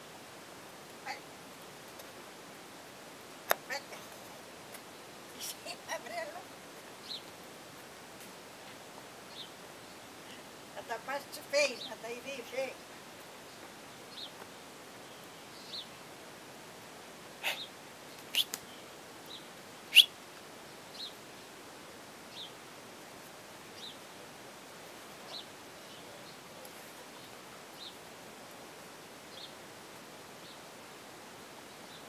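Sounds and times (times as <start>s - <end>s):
small bird chirping: 17.4s - 20.1s.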